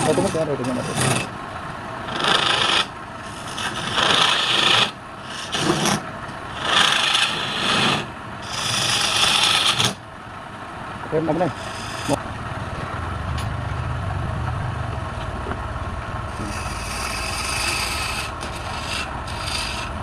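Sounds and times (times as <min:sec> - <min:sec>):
lathe tool rasping on wood: 0:00.0 - 0:01.3, 0:02.1 - 0:06.0, 0:06.6 - 0:10.0, 0:11.4 - 0:12.2, 0:16.3 - 0:20.0.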